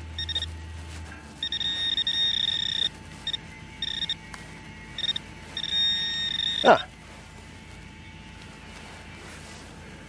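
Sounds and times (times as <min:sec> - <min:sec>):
metal detector beeping: 0:00.0 - 0:00.6, 0:01.4 - 0:06.9.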